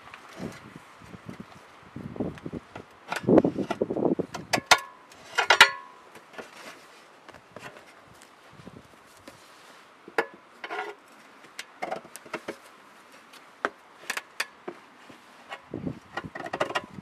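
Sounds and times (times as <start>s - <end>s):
tools knocking and clattering: 4.4s - 5.9s.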